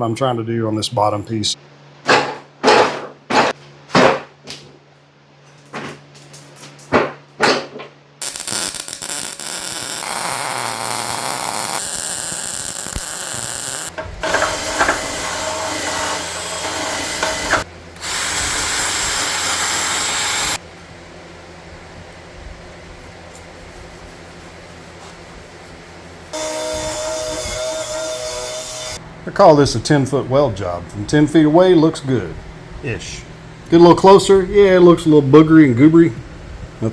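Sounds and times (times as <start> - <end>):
sharp knocks: 2.1 - 4.6
electric power tool running: 8.2 - 20.6, 26.4 - 29.0.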